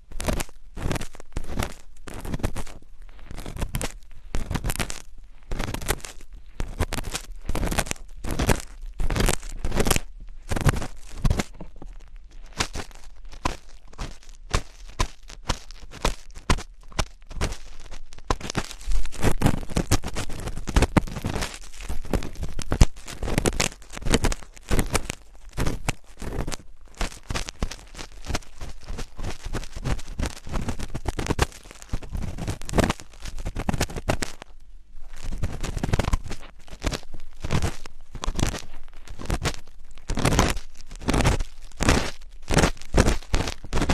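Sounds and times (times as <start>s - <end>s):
close scratching and rustling: 0.0s - 43.9s.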